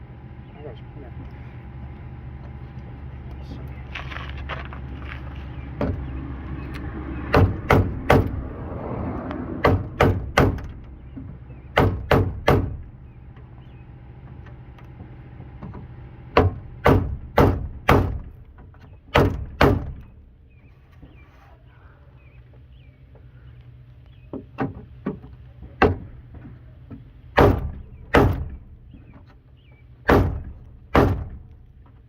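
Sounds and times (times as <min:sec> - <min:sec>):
hammer striking steel door: 0:07.3 - 0:08.4, 0:09.6 - 0:10.9, 0:11.7 - 0:12.9, 0:16.3 - 0:18.4, 0:19.1 - 0:20.1, 0:27.4 - 0:28.7, 0:30.1 - 0:31.5.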